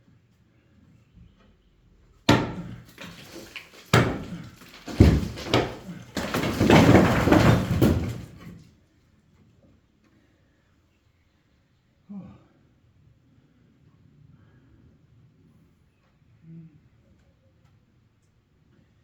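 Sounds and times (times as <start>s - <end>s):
heavy blows on brick wall: 2.3s - 8.5s
bricks and rubble clattering down: 2.3s - 8.6s.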